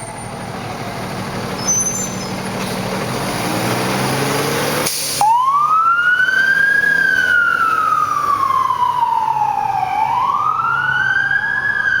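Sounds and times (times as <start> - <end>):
truck engine rumbling: 0.0 - 12.0
fire engine siren wailing: 5.1 - 12.0.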